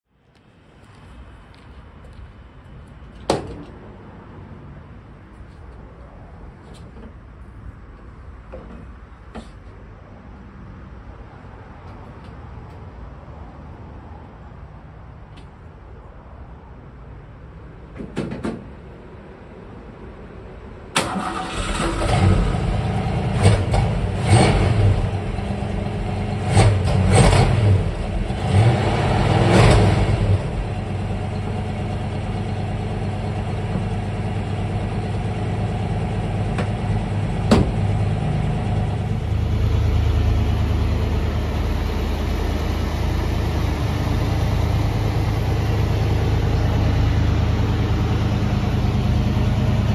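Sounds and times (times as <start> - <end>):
car engine starting and revving: 21.0 - 31.4.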